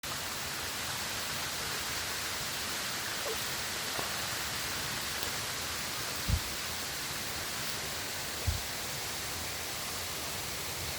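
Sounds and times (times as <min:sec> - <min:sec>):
steady rushing noise: 0:05.6 - 0:09.1
low thump: 0:06.3 - 0:06.5.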